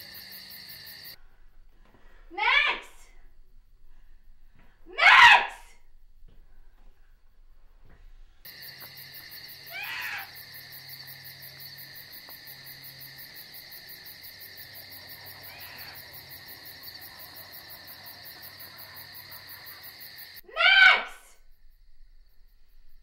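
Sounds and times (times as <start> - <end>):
loud sudden cry: 5.0 - 5.7, 9.7 - 10.3, 20.4 - 21.3
insect chirring: 8.5 - 20.4.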